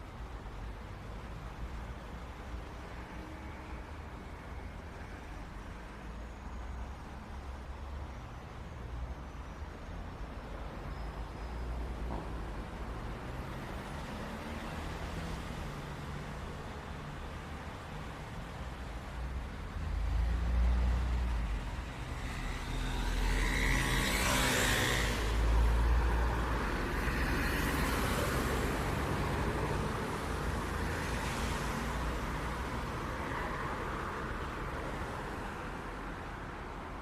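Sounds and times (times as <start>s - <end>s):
vehicles passing by: 12.1s - 37.0s.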